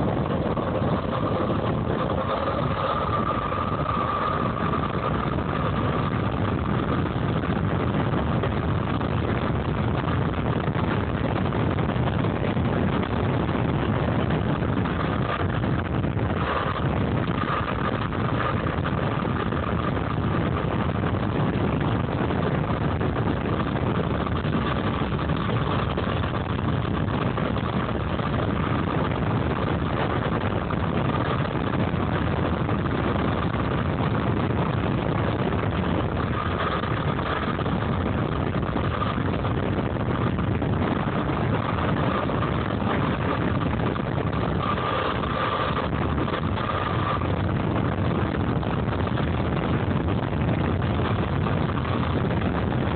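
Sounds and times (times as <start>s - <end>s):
electric motor whine: 0.0s - 27.0s
wind and tyre noise: 0.0s - 52.9s.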